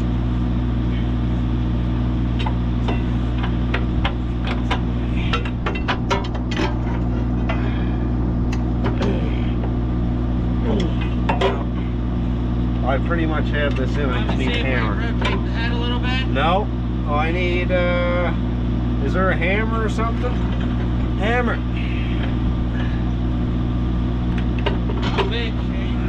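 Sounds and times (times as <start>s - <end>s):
engine idling: 0.0s - 26.0s
metal clinks and knocks: 2.4s - 7.7s, 10.9s - 11.9s.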